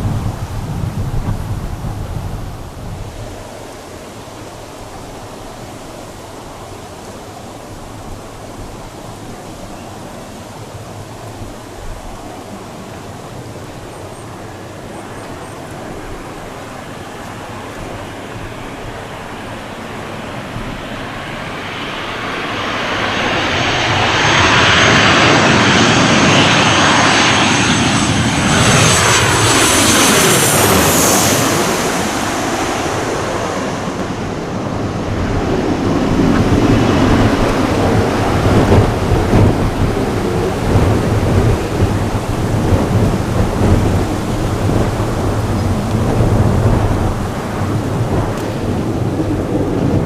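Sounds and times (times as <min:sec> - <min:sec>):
gusty low rumble: 0:00.0 - 0:03.5, 0:22.6 - 0:50.0
high fan whine: 0:00.0 - 0:50.0
jet airliner passing overhead: 0:00.0 - 0:50.0.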